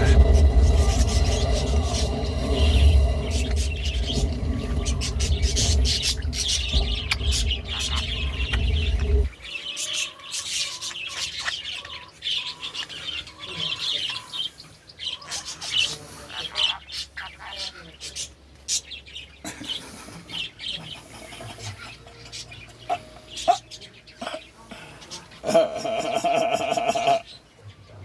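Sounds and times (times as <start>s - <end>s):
low steady rumble: 0.0s - 9.5s
pet bird chirping: 3.0s - 19.4s, 20.3s - 25.5s.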